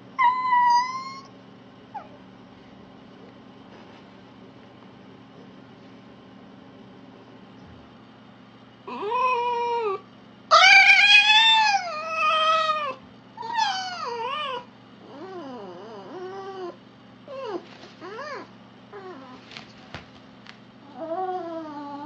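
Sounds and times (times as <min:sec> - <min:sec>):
fox wavering calls: 0:00.2 - 0:01.3, 0:08.9 - 0:16.8.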